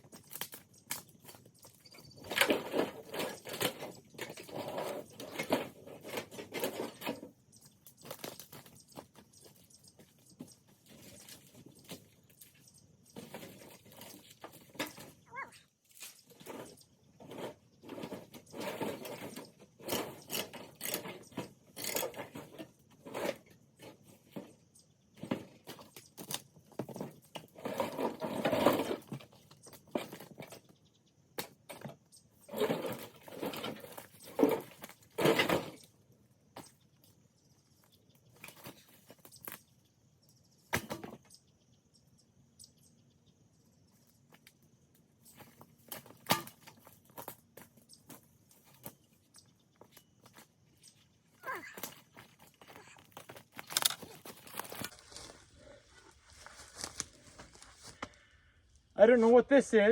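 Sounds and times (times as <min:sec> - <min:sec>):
dry brush crunching and rustling: 0:51.6 - 0:58.3.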